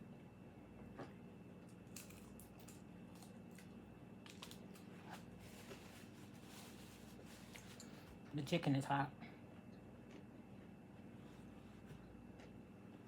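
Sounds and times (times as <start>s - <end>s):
low steady hum: 0.0s - 13.0s
chewing crispy chicken skin: 1.0s - 5.3s, 9.9s - 10.8s.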